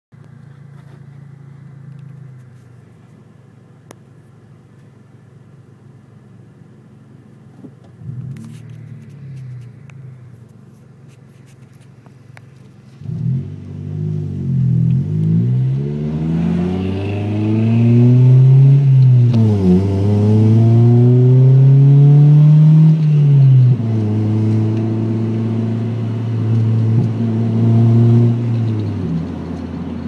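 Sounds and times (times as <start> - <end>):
car engine idling and revving: 0.1 - 30.0.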